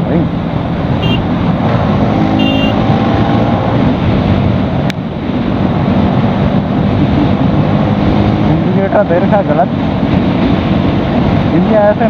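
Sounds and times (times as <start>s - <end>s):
wind rushing over microphone: 0.0s - 12.0s
motorcycle engine running: 1.0s - 3.0s.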